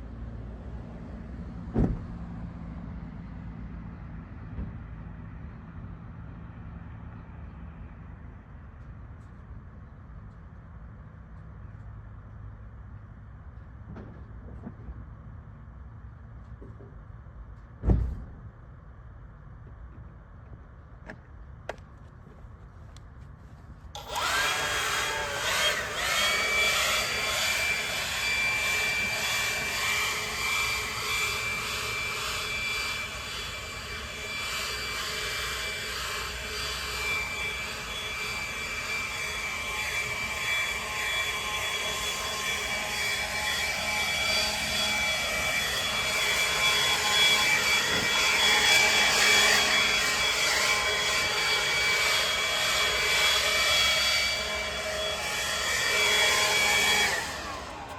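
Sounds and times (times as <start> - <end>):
leaf blower running: 24.0 - 57.9.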